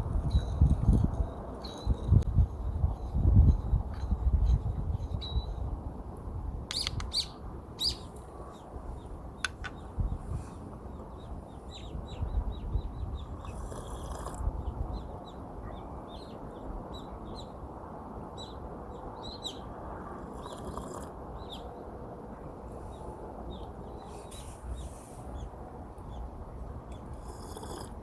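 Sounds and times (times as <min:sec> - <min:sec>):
small birds chirping: 0:06.7 - 0:17.6, 0:18.4 - 0:21.8.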